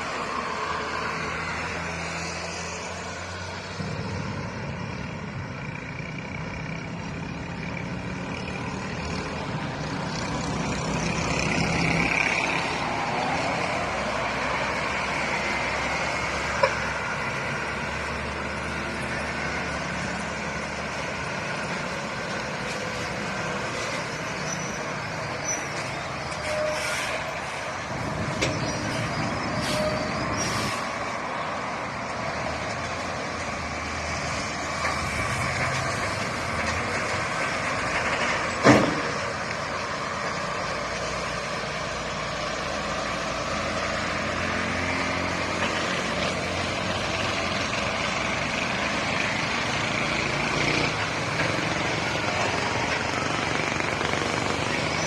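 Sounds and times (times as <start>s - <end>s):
road traffic passing: 0.0s - 55.0s.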